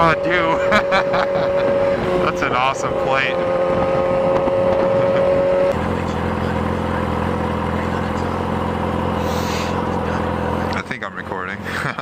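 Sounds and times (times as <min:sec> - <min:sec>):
sport bike engine running: 0:00.0 - 0:12.0.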